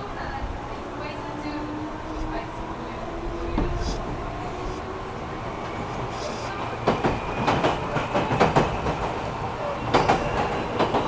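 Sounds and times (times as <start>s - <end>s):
train interior rumble: 0.0s - 11.0s
wheels clacking over rail joints: 9.8s - 11.0s.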